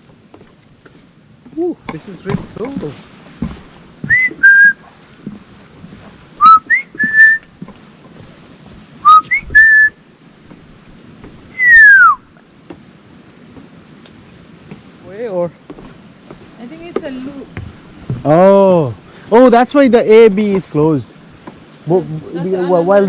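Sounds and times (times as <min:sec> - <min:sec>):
person whistling: 0:04.1 - 0:04.8, 0:06.4 - 0:07.4, 0:09.0 - 0:09.9, 0:11.6 - 0:12.2.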